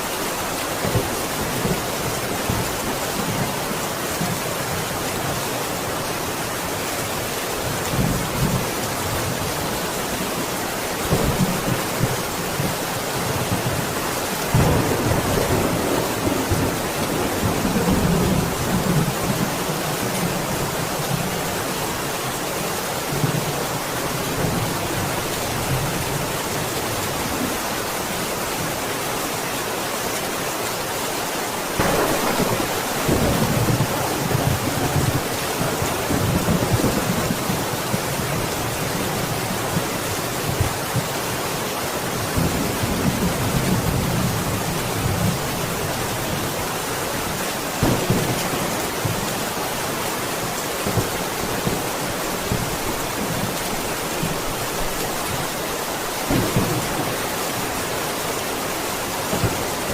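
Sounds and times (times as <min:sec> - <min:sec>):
heavy rain falling: 0:00.0 - 0:59.9
thunder rumbling: 0:14.5 - 0:19.6, 0:31.8 - 0:38.1.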